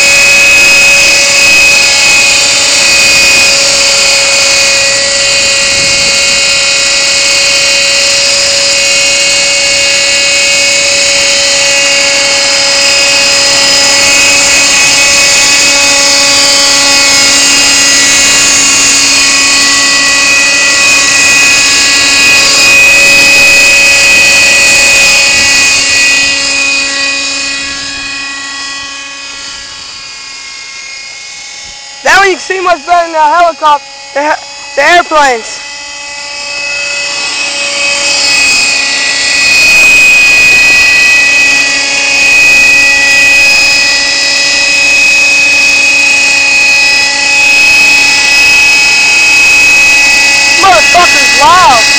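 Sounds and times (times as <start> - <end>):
model helicopter engine whine: 0.0 - 51.9.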